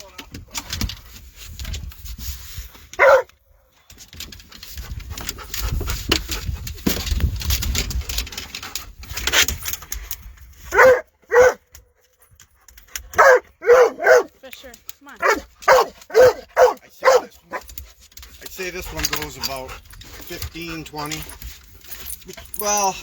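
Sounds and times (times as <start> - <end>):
dog barking in high yelps: 3.0 - 3.3, 10.7 - 11.7, 13.1 - 14.4, 15.1 - 17.8.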